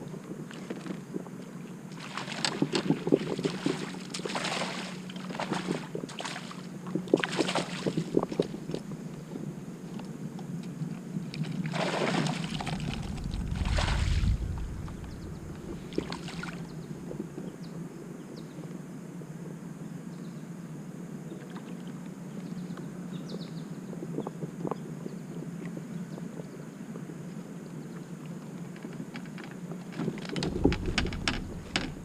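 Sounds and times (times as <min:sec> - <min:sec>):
steady low hum: 0:00.0 - 0:21.3, 0:30.0 - 0:32.0
water splashing against kayak: 0:00.4 - 0:08.9, 0:11.3 - 0:17.3, 0:29.9 - 0:32.0.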